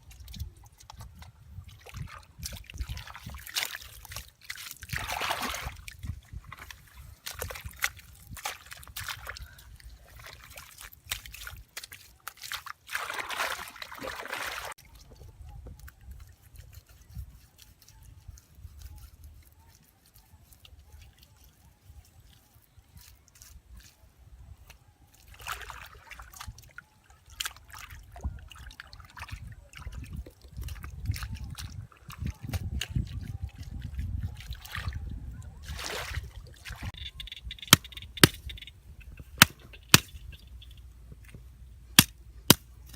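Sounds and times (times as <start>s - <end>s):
water sloshing and trickling: 0.0s - 42.9s
splashing: 1.7s - 14.8s, 35.6s - 37.0s.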